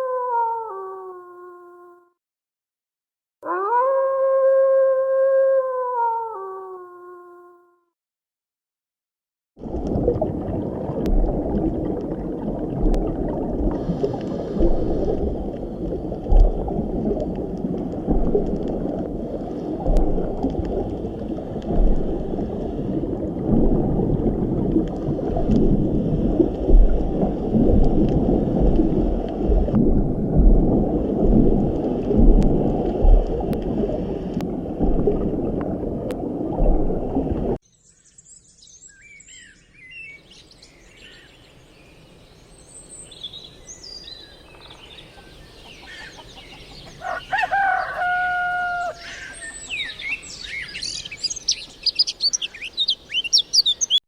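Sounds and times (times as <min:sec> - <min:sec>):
bird chirps: 0:42.7 - 0:47.9, 0:48.8 - 0:54.0
bird call: 0:44.1 - 0:54.0.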